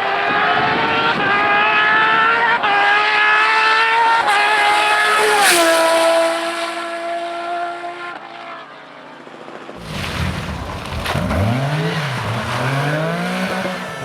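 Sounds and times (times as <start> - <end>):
rally car engine revving: 9.8 - 14.0.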